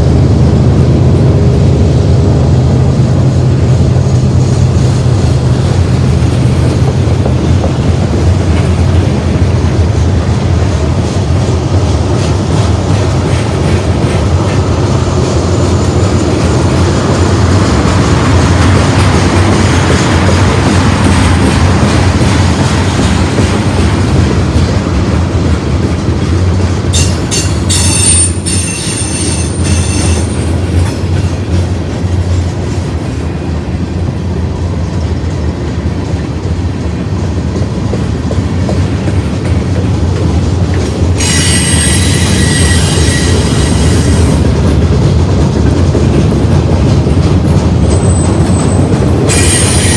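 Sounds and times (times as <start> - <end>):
freight train rumbling past: 0.0 - 49.9
high wheel squeal: 27.0 - 30.6, 41.2 - 44.4, 47.9 - 49.9.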